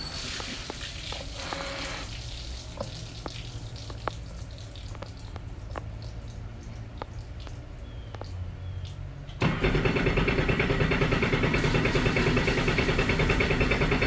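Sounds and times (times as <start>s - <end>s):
water trickling and dripping: 0.0s - 9.4s.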